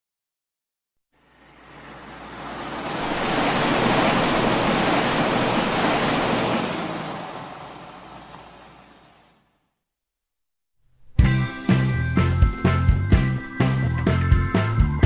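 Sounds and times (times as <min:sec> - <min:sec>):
rushing surf-like noise: 0:01.3 - 0:09.4.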